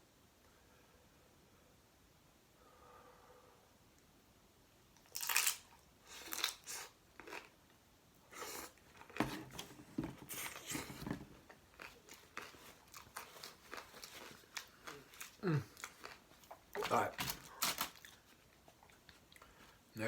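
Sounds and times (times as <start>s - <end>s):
person chewing: 5.0s - 7.6s, 8.3s - 9.6s, 10.3s - 19.7s.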